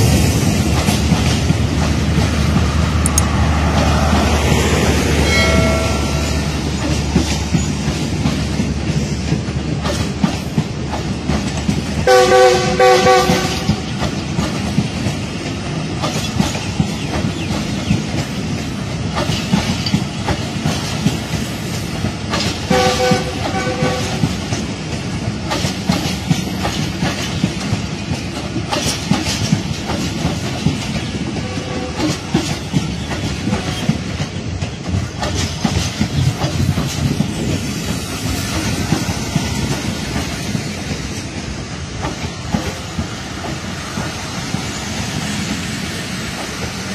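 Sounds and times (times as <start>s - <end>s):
train wheels clicking over rail joints: 0.0s - 46.9s
locomotive horn blasts: 12.1s - 13.8s, 22.7s - 24.3s, 31.4s - 32.1s.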